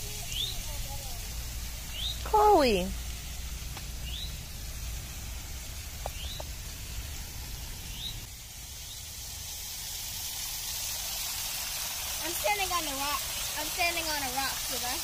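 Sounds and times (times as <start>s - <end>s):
small waterfall rushing over stone: 0.0s - 15.0s
bird rising chirp: 0.2s - 0.8s, 1.8s - 2.9s, 3.9s - 4.6s, 6.0s - 6.6s, 7.6s - 9.1s.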